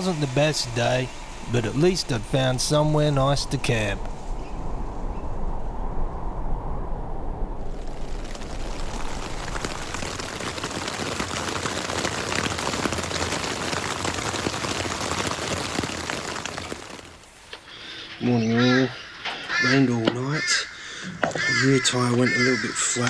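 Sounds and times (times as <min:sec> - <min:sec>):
low rumble: 0:00.0 - 0:11.0
steady rain falling: 0:00.0 - 0:19.7.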